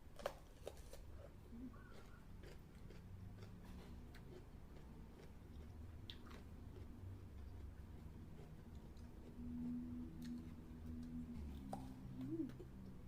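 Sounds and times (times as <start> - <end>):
person chewing food: 0.2 - 13.0
low hum: 7.3 - 13.0.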